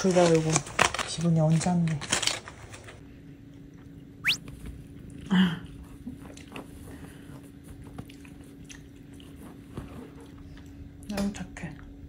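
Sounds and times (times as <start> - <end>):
soft chewing with clicks: 7.8 - 9.7.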